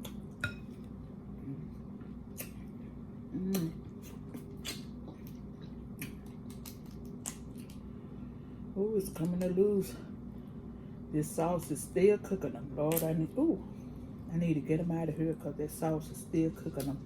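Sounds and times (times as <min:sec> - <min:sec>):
low room hum: 0:00.0 - 0:17.0
person humming: 0:01.4 - 0:01.8, 0:03.3 - 0:03.8
wet eating clicks and smacks: 0:02.3 - 0:02.6, 0:03.5 - 0:07.8.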